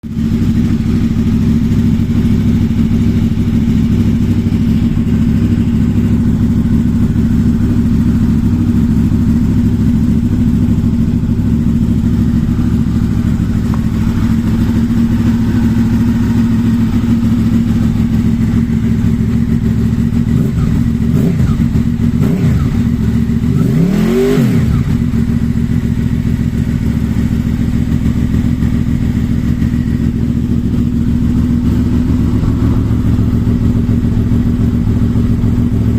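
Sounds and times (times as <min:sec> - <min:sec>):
motorcycle engine idling: 0:00.0 - 0:35.9
engine revving: 0:20.2 - 0:25.4.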